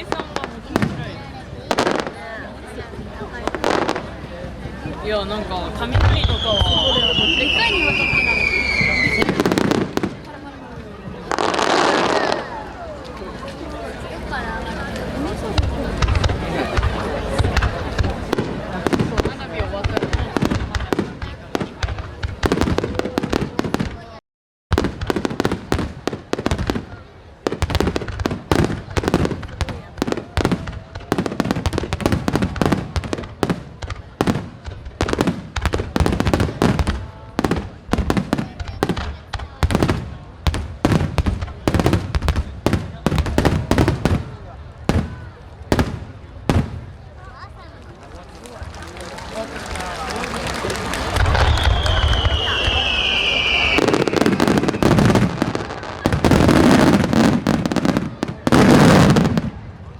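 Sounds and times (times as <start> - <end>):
fireworks bursting: 0.0 - 13.5, 14.9 - 47.2, 48.2 - 59.9
falling firework whistle: 6.1 - 9.5, 50.5 - 55.0.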